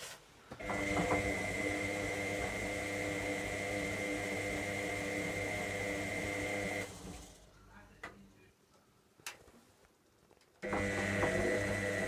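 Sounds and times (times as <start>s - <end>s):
washing machine motor humming: 0.6s - 7.4s, 10.6s - 12.0s.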